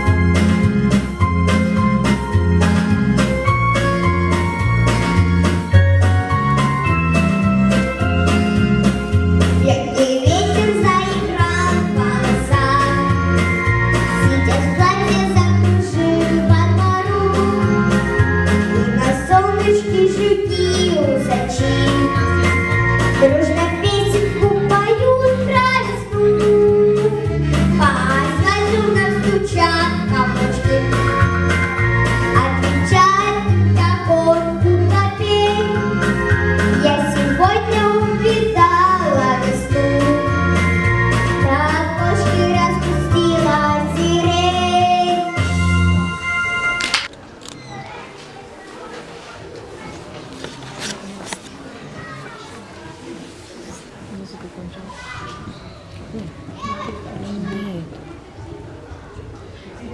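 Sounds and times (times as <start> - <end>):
instrumental backing with bass and beat: 0.0 - 47.1
child singing: 9.6 - 13.4, 14.2 - 17.9, 19.0 - 22.6, 23.2 - 31.2, 32.3 - 35.9, 36.8 - 40.5, 41.4 - 45.4.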